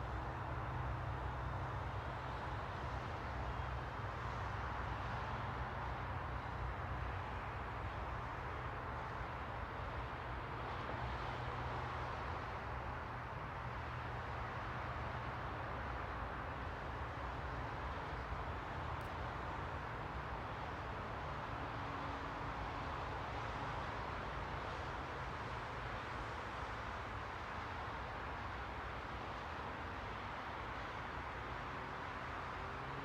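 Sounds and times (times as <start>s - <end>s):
white noise hiss: 13.5s - 33.0s.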